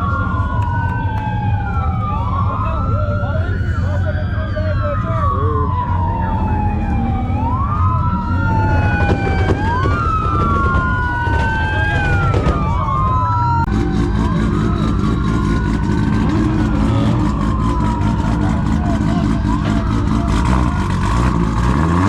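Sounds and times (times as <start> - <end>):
low engine rumble: 0.0 - 22.0
police sirens wailing: 0.0 - 22.0.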